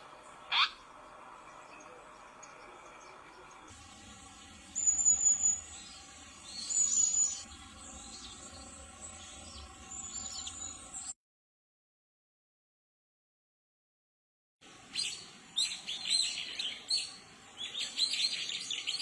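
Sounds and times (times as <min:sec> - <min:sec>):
high thin bird chirping: 0:00.4 - 0:00.8, 0:04.7 - 0:07.5.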